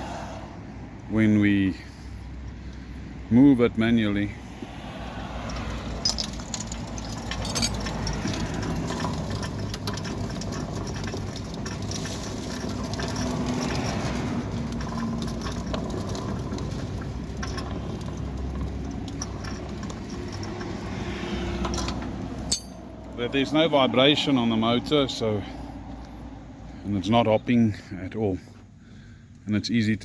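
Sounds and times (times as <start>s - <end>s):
sliding gate wheels rolling: 4.6s - 25.4s
steel rack running over gear: 6.0s - 22.8s.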